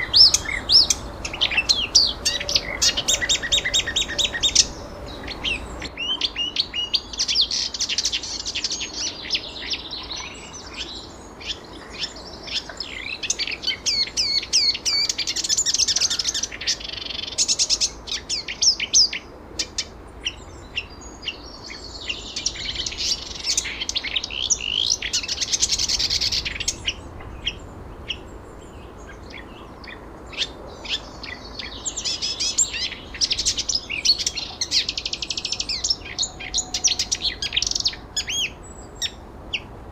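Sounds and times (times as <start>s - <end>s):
songbirds trilling: 0.0s - 39.9s.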